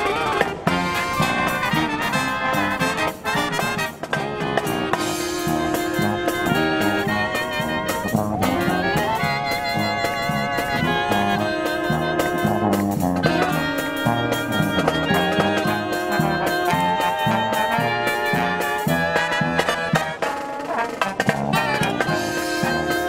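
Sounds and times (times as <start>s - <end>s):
brass band playing jazz: 0.0s - 23.0s.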